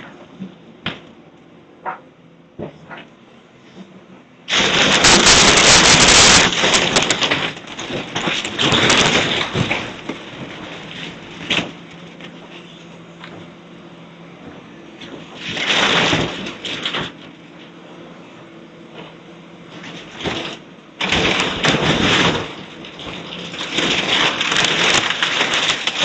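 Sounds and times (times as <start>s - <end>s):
sharp crack: 4.5s - 11.8s
breaking wood and rubble crackling: 4.5s - 13.6s, 14.4s - 17.8s, 18.9s - 26.0s
demolition debris crashing: 4.5s - 13.6s, 14.4s - 18.3s, 18.9s - 26.0s.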